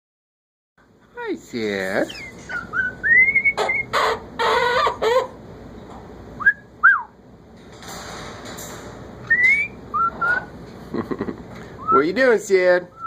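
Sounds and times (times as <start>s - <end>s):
parrots squawking: 1.8s - 5.4s
parrots whistling: 2.1s - 5.4s, 9.2s - 10.6s, 11.7s - 12.1s.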